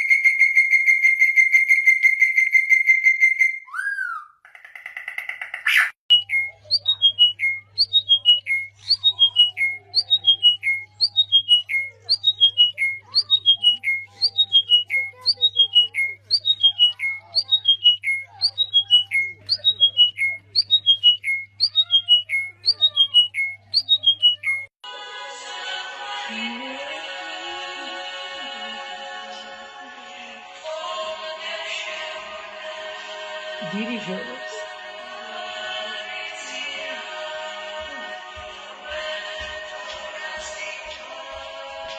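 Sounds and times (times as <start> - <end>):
bird calling high descending notes: 0.0 - 24.7.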